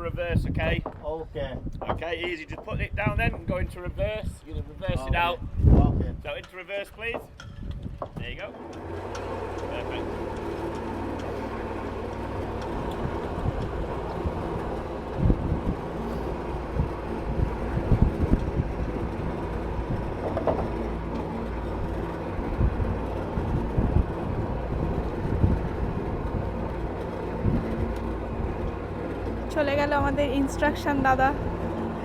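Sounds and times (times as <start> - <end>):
motorboat engine running: 7.6 - 32.0.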